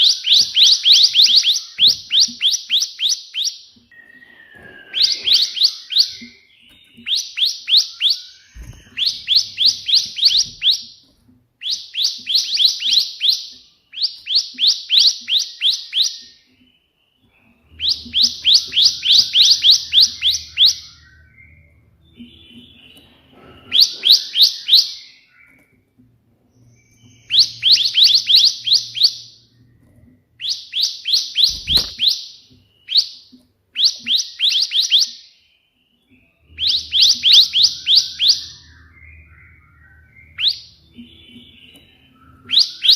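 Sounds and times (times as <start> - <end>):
bird rapid high chip notes: 30.4 - 32.3.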